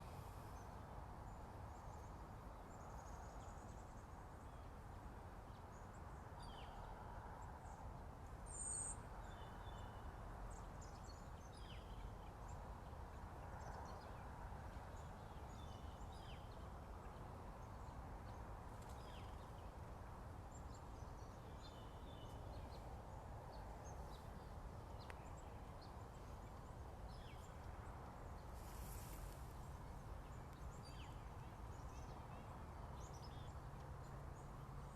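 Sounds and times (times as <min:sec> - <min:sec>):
steady low background noise: 0:00.0 - 0:34.9.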